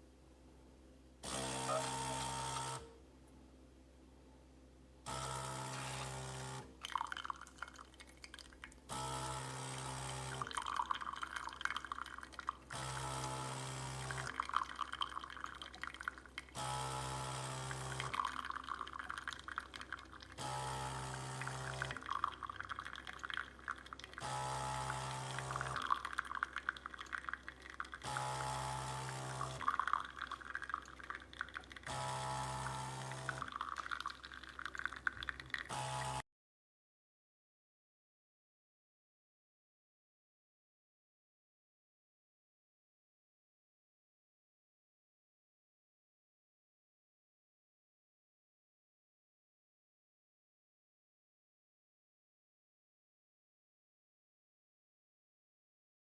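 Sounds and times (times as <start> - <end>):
espresso machine pump humming: 1.2 - 2.9, 5.1 - 7.4, 8.9 - 36.2
liquid sputtering and splashing: 21.4 - 36.2.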